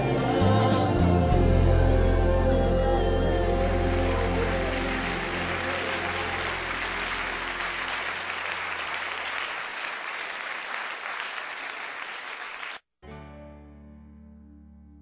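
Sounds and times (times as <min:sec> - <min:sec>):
audience applauding: 0:03.4 - 0:12.8.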